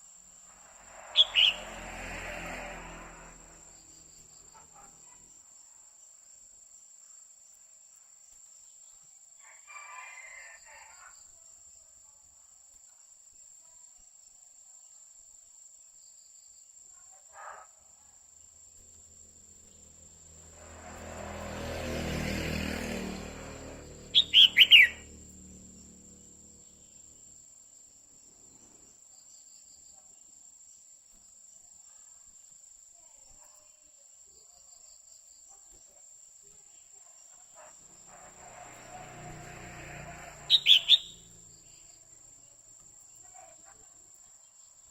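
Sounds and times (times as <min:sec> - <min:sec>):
rush of noise: 0:00.5 - 0:03.8
bird calls sliding downward: 0:00.9 - 0:03.3, 0:24.1 - 0:25.1, 0:38.3 - 0:41.4.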